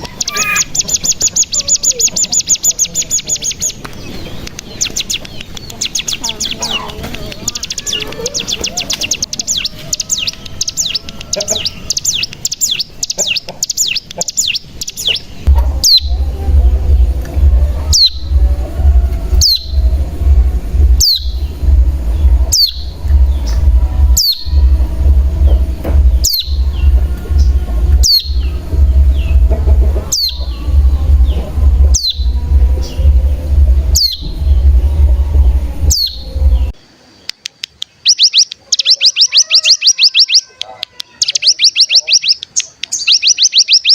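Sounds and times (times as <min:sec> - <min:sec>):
bird chattering trill: 0:00.0 - 0:36.7, 0:37.6 - 0:43.9
sharp down-slurred bird call: 0:00.2 - 0:00.8
steady low hum: 0:15.3 - 0:36.8.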